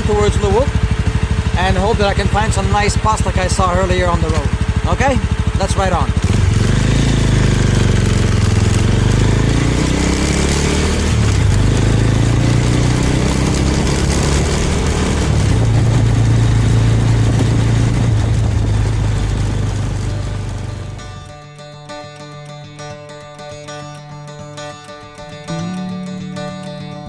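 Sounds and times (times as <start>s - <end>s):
motorcycle engine pulling away: 0.0s - 27.0s
wind rushing over microphone: 13.2s - 20.7s.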